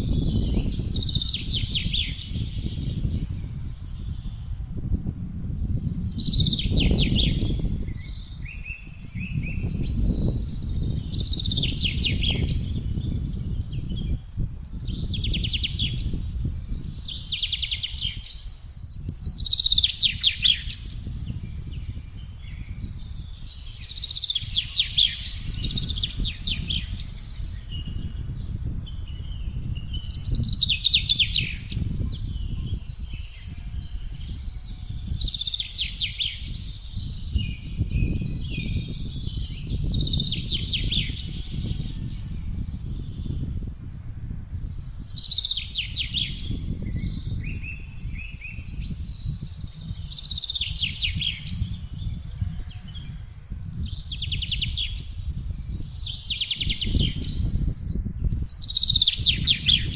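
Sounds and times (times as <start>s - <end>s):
low rumble of wind: 0.0s - 59.9s
songbird trilling: 5.9s - 28.3s, 28.9s - 43.5s, 44.8s - 55.2s, 56.0s - 59.9s.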